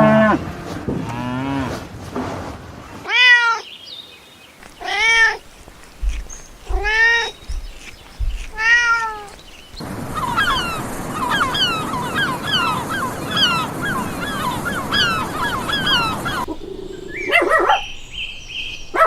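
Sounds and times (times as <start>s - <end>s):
background hiss: 3.0s - 19.0s
high falling chirping calls: 3.6s - 19.0s
cat meowing: 4.8s - 5.4s, 6.7s - 7.4s, 8.5s - 9.4s.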